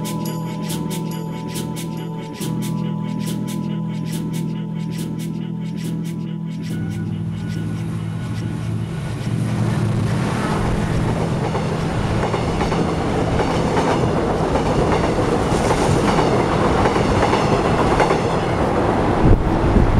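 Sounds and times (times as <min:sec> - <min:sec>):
train wheels clattering over rails: 0:10.5 - 0:18.8.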